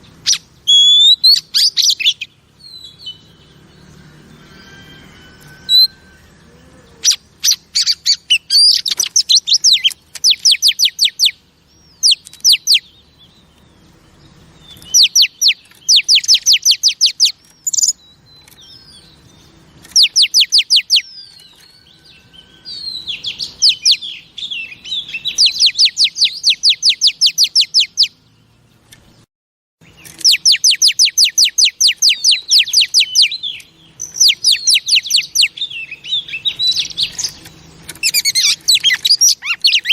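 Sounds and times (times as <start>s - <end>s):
whistled bird notes: 0.0s - 28.3s, 29.8s - 39.9s
bird calling in rattling runs: 29.9s - 39.9s.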